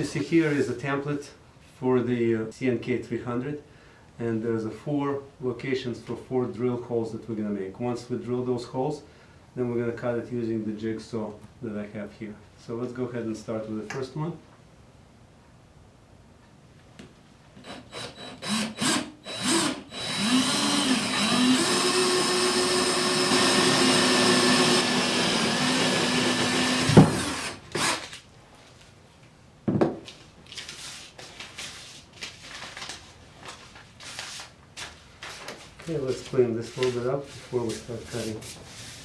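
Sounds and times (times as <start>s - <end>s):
power drill boring into wood: 17.6s - 28.1s
knock: 29.7s - 30.0s.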